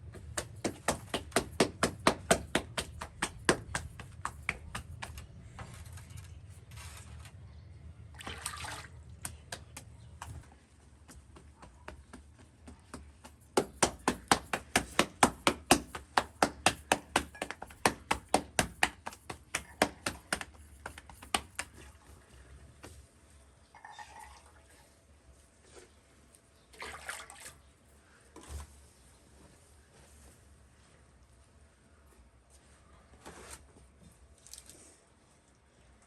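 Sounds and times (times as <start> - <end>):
fast run of knocks: 0.1 - 5.2, 11.4 - 21.7
rustling: 0.1 - 7.6.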